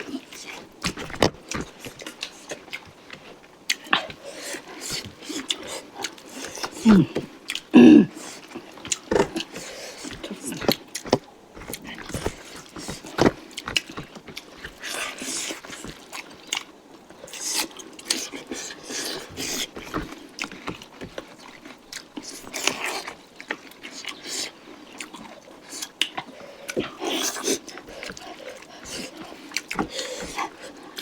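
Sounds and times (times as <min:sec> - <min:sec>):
people chewing and smacking: 0:00.0 - 0:31.0.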